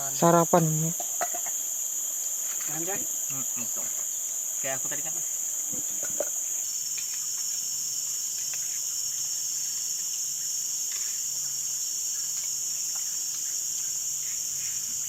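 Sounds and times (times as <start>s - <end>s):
insect chorus: 0.0s - 15.0s.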